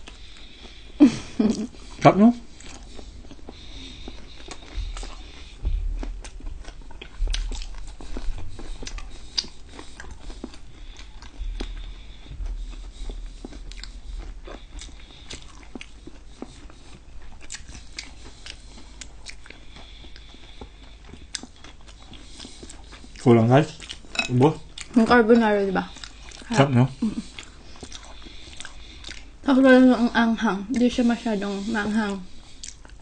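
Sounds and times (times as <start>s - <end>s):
people chewing: 0.0s - 33.0s
food crunching: 1.7s - 25.1s, 25.9s - 29.4s, 32.3s - 33.0s
low thuds: 4.6s - 9.2s, 11.2s - 15.0s.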